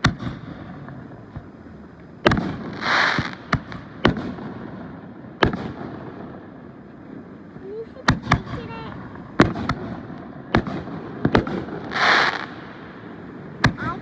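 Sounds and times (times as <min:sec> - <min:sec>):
crackling hiss: 0:00.0 - 0:14.0
firework bangs: 0:00.0 - 0:14.0.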